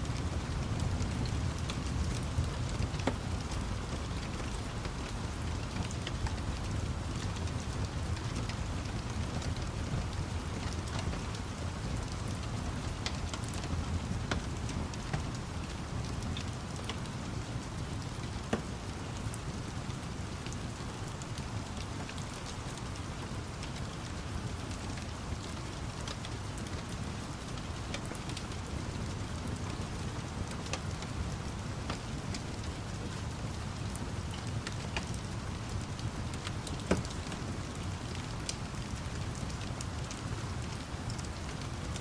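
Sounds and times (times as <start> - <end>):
steady rain: 0.0 - 42.0
fire crackling and popping: 0.1 - 42.0.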